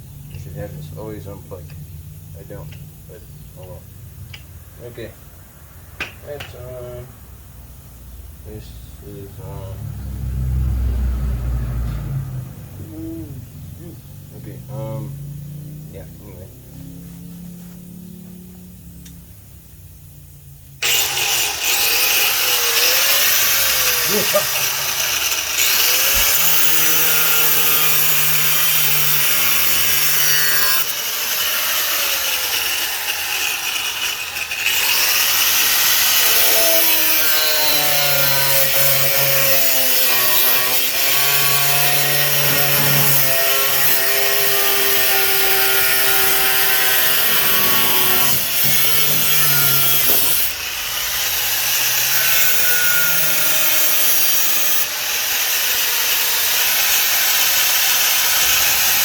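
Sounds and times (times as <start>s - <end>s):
angle grinder cutting metal: 20.8s - 59.0s.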